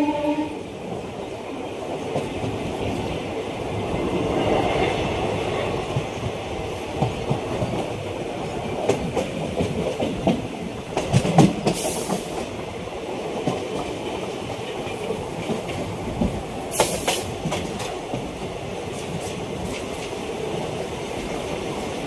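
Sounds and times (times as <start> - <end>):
train rumble: 0.0 - 22.0
wheels clacking over rail joints: 4.4 - 21.6
brief high hiss: 16.7 - 17.3.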